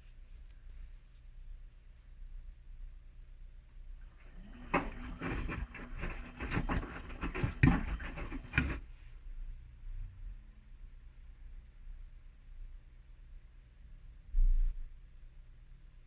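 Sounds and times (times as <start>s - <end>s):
laundry and water tumbling: 4.0s - 8.9s
washing machine motor hum: 4.0s - 8.9s.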